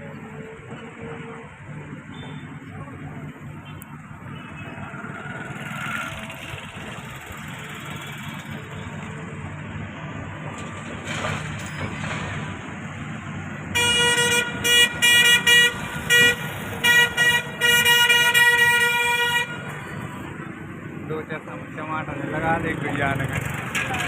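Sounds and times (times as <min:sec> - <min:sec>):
vehicle engine rumble: 0:00.0 - 0:24.0
vehicle horn blast and toots: 0:13.7 - 0:19.8.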